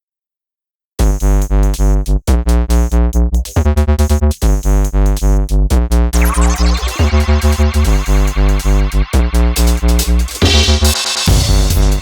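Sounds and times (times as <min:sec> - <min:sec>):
pulsing bass beat: 0:01.0 - 0:12.0
rising synth sweep: 0:06.2 - 0:12.0
synthesizer chords: 0:06.2 - 0:12.0.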